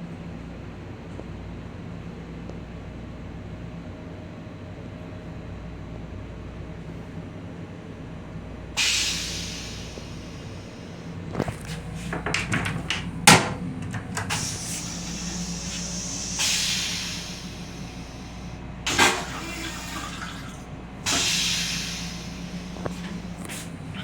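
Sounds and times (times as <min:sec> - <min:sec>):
railcar hum: 0:00.0 - 0:24.0
toilet flushing water hiss: 0:08.8 - 0:24.0
clunks and sharp knock: 0:12.1 - 0:14.4.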